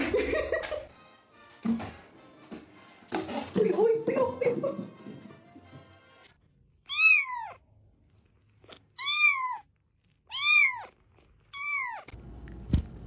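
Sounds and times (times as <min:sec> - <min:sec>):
cat meowing: 0:06.9 - 0:07.6, 0:08.6 - 0:12.1.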